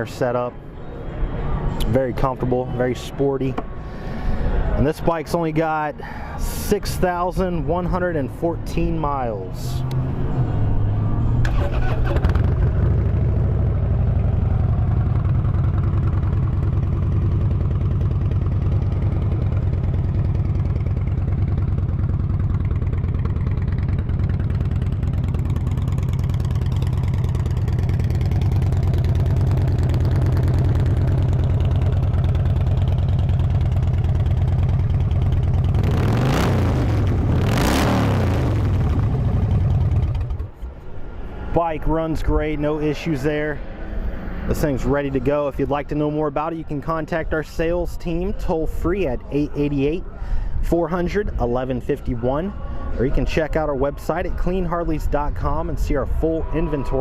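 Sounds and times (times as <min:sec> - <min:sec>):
motorcycle engine revving: 0:09.7 - 0:40.6
motorcycle engine idling: 0:11.5 - 0:35.9, 0:38.7 - 0:40.6.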